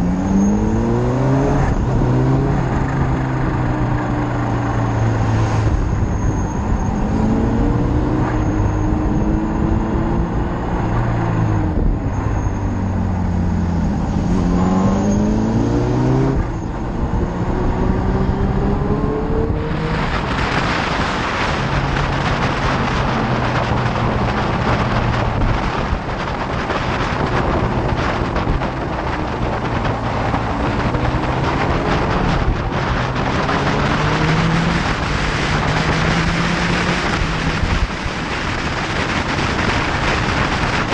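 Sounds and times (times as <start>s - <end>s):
wind noise on microphone: 0.0s - 40.9s
motorcycle engine revving: 13.4s - 40.9s.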